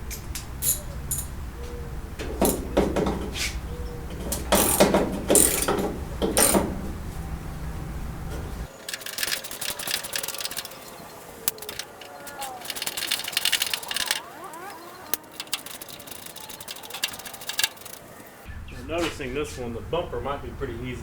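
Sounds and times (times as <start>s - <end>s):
low hum: 0.0s - 9.2s
ratchet clicking: 0.6s - 1.3s, 2.2s - 7.0s, 8.6s - 18.5s
hand tools rasping on metal: 2.2s - 7.0s, 8.8s - 18.4s.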